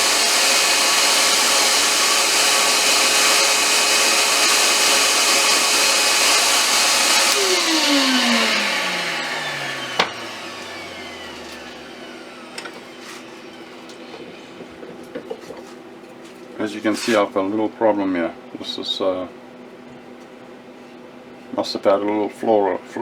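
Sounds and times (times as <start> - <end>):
lathe motor whine spinning down: 0.0 - 14.4.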